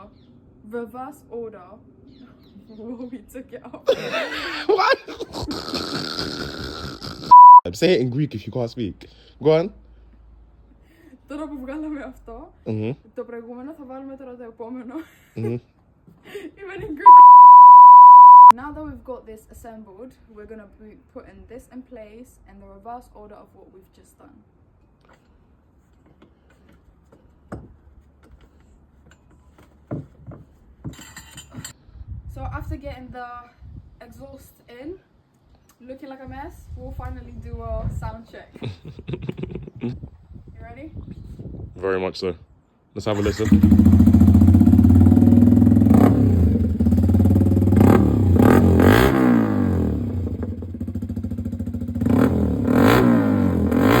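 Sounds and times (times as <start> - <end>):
metal tools rattling clatter: 30.9 - 31.7
motorcycle engine revving: 43.1 - 54.0
motorcycle engine idling: 43.3 - 45.8.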